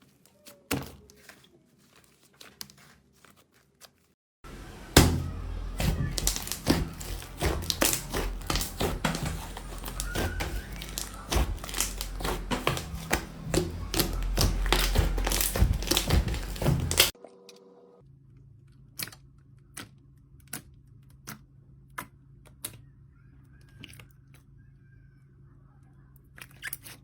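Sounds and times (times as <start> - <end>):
slime clicking and popping: 5.0 - 17.1.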